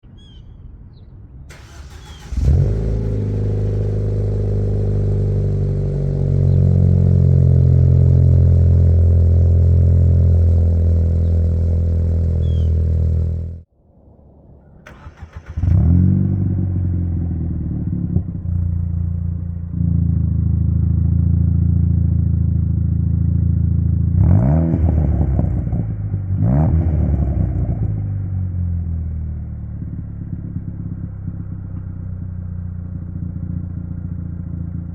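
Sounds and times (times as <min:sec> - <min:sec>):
car engine revving: 0:01.5 - 0:13.7
car engine starting and idling: 0:01.5 - 0:13.7, 0:14.8 - 0:24.2, 0:27.8 - 0:34.9.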